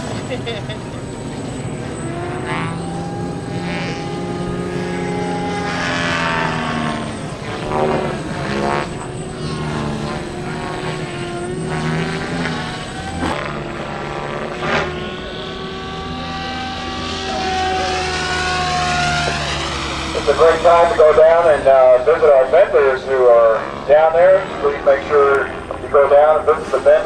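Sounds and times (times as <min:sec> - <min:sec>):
rc helicopter rotor whine: 0:00.0 - 0:27.0.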